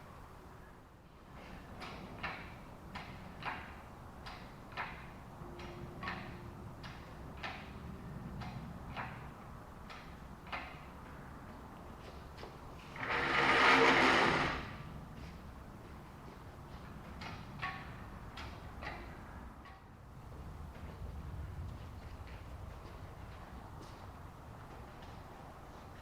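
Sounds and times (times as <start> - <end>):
rough scraping noise: 12.8 - 14.8.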